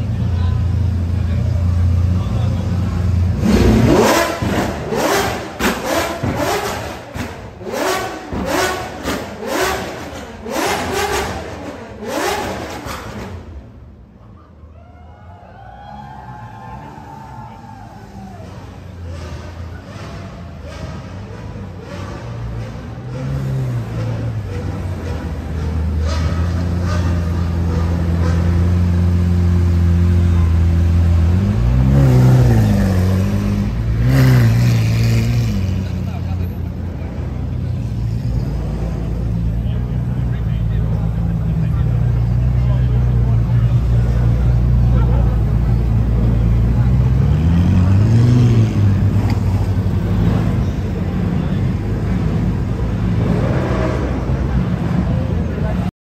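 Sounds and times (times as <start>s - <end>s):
car engine revving: 0.8s - 14.0s, 18.3s - 55.9s
car engine idling: 35.7s - 48.1s.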